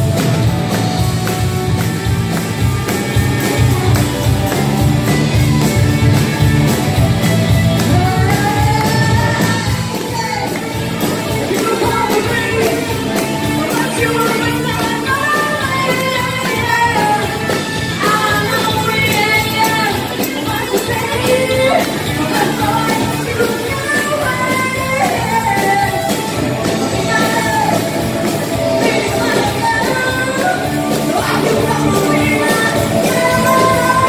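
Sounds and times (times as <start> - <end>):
gliding melodic lead line: 0.0 - 34.0
rock band playing: 0.0 - 34.0.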